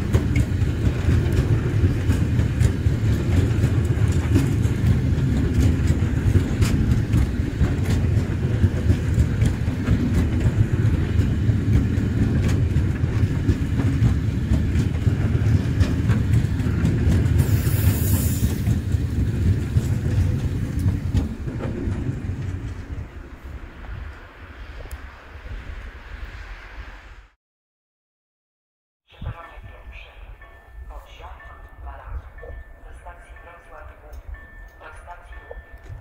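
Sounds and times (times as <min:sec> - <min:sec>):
freight train rumbling past: 0:00.0 - 0:27.4.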